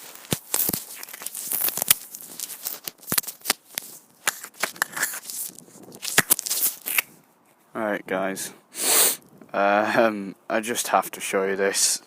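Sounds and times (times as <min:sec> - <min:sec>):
microphone handling noise: 0:03.8 - 0:07.2.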